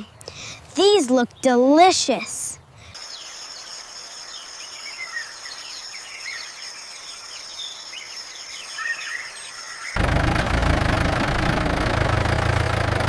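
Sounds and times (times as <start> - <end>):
bird chirps: 2.7 - 10.0.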